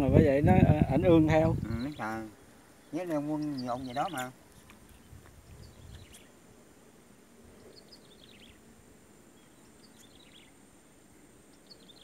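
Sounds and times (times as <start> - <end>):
bird chirping: 1.6 - 4.3, 4.9 - 6.4, 7.5 - 8.7, 9.3 - 10.6, 11.5 - 12.0.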